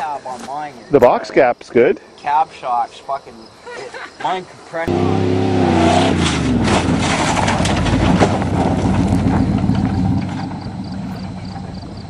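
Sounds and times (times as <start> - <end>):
pickup truck engine moving off: 4.9 - 12.0.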